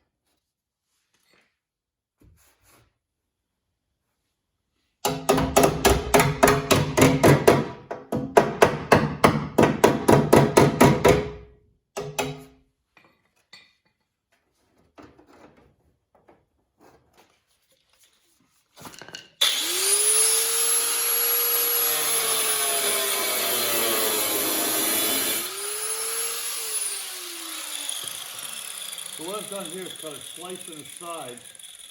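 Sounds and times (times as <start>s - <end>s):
power tool cutting sheet metal: 19.4s - 31.9s
fast ringing strokes: 27.6s - 31.9s.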